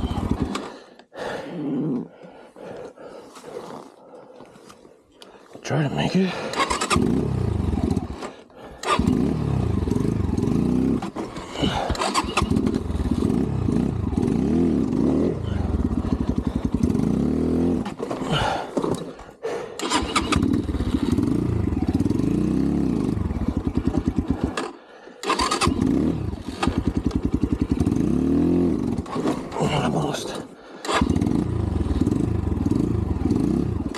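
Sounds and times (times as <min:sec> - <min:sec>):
dirt bike engine revving: 0:00.0 - 0:00.7, 0:06.5 - 0:18.6, 0:19.8 - 0:30.1, 0:30.8 - 0:33.9.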